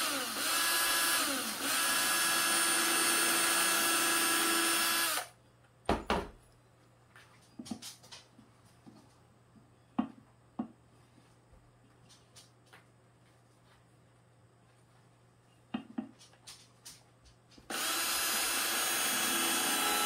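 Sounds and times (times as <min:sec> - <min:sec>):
power drill drilling into wood: 0:00.0 - 0:05.3, 0:17.7 - 0:20.0.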